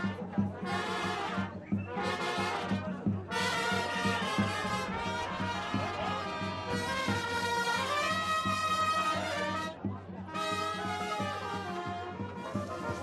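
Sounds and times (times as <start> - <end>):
brass band music: 0.0 - 13.0
low drum beat: 2.7 - 7.6.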